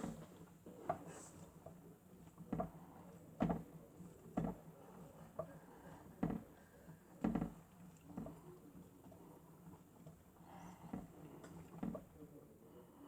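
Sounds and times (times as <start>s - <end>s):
soft knock of turning drum: 2.5s - 2.8s, 3.4s - 3.7s, 4.4s - 4.7s, 6.2s - 6.6s, 7.2s - 8.4s.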